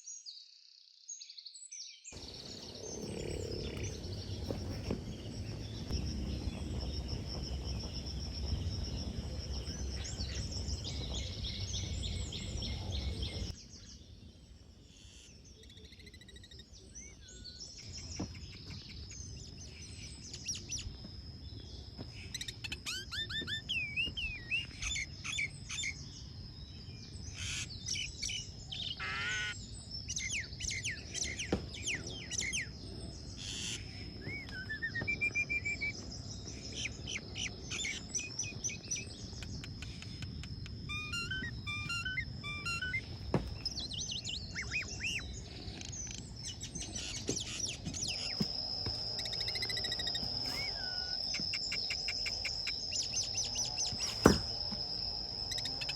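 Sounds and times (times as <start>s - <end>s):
loud low rumbling noise: 2.2s - 13.6s
birds chirping and calling: 2.2s - 14.0s, 27.3s - 55.9s.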